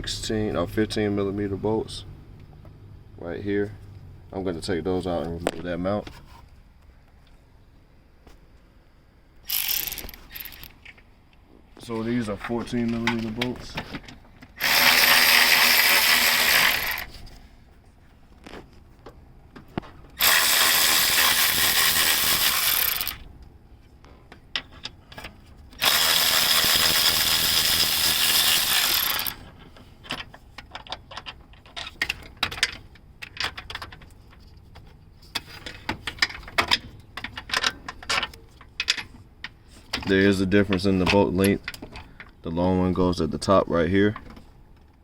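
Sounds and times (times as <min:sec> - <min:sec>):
power tool running: 0:09.5 - 0:10.6, 0:14.6 - 0:17.2, 0:20.2 - 0:23.2, 0:25.8 - 0:29.4.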